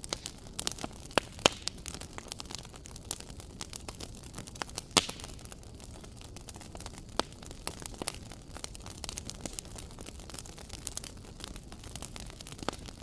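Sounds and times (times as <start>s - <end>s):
low rumble of flames: 0.0s - 13.0s
wood fire crackling: 0.0s - 13.0s.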